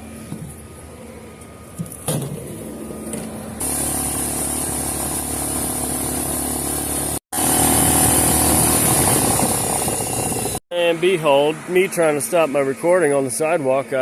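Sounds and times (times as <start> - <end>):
atv engine running: 2.8 - 10.6.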